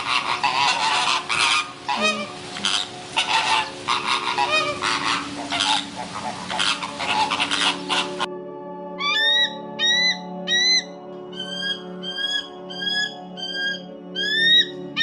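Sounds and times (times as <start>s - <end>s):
waterfowl calling: 0.0s - 8.3s, 9.0s - 15.0s
background music: 0.0s - 15.0s.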